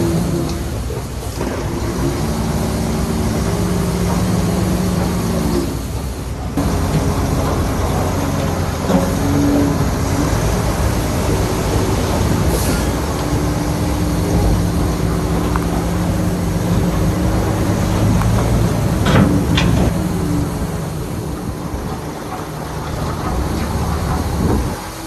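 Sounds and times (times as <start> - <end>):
bulldozer diesel engine running: 0.0 - 25.0
sharp metallic knocks: 13.0 - 24.7.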